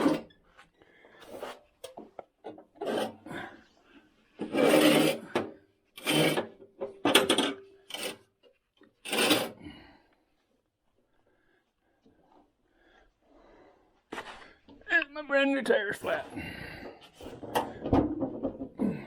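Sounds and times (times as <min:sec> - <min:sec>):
parts scraping and rubbing: 0:00.0 - 0:03.3, 0:04.1 - 0:09.6.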